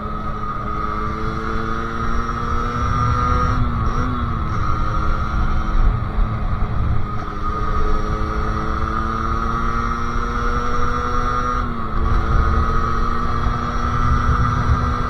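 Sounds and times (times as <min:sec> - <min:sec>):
two-stroke engine high-revving: 0:00.0 - 0:15.0
wind and road noise: 0:00.0 - 0:15.0.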